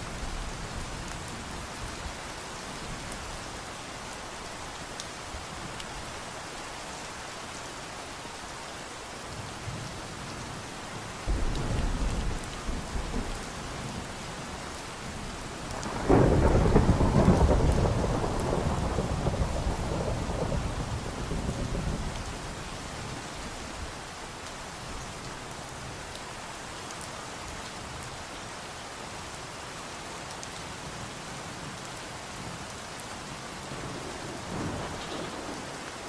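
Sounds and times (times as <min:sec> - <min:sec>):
steady rainfall: 0:00.0 - 0:36.0
rolling thunder: 0:11.2 - 0:14.2, 0:15.1 - 0:22.7, 0:33.6 - 0:36.0.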